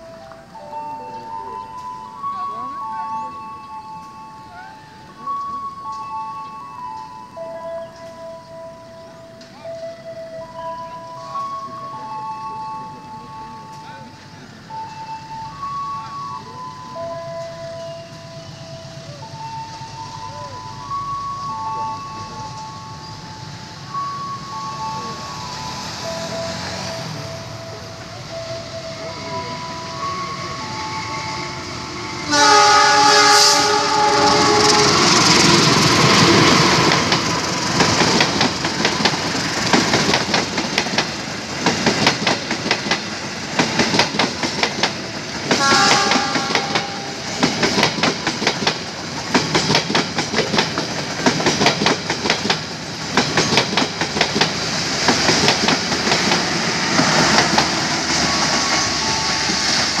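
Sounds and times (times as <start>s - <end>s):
train wheels clattering: 24.2s - 60.0s
train horn: 26.2s - 39.2s, 45.4s - 48.2s.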